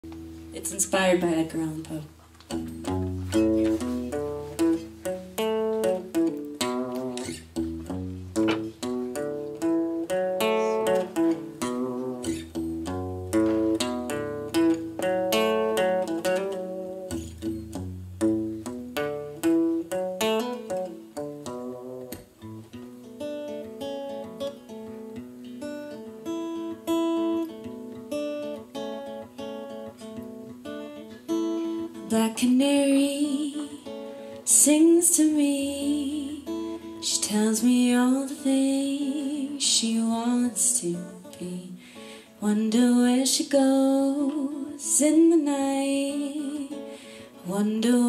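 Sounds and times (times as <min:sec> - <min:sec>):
acoustic guitar plucked notes: 0:00.0 - 0:48.0.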